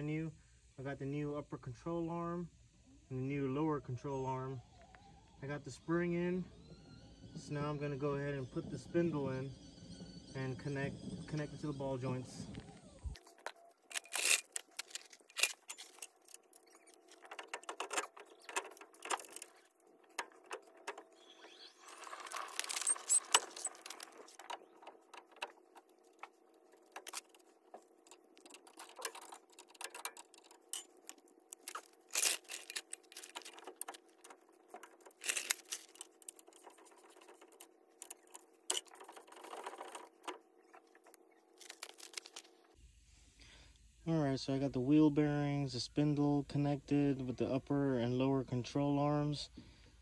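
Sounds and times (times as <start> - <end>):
faint steady hum: 0.0 - 50.0
rattling scrape: 13.9 - 40.8.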